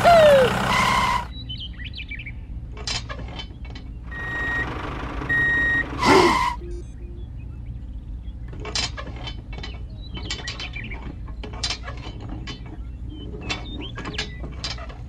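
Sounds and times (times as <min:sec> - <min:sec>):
low hum: 0:00.0 - 0:14.8
mechanical clicks and clanks: 0:08.4 - 0:15.0.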